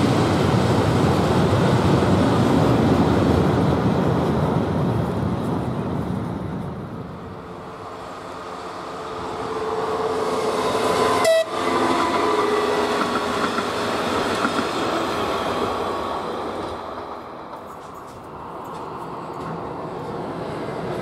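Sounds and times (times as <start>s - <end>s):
train passing: 0.0s - 21.0s
train horn tones: 9.4s - 13.2s.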